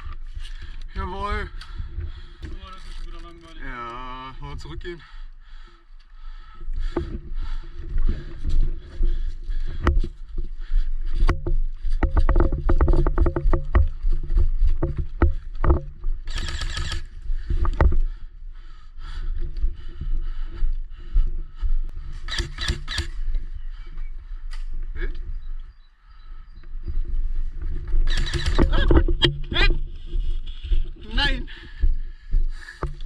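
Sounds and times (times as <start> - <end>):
footsteps: 6.8 - 16.3, 26.8 - 33.0.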